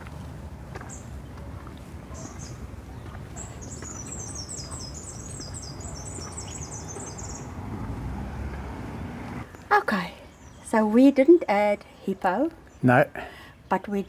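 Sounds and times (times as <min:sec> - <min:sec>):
small bird twittering: 0:02.1 - 0:09.7.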